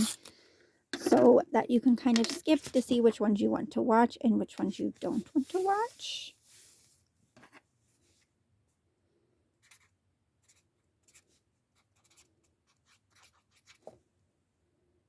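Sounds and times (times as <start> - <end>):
paper and stationery tapping: 2.1 - 2.9.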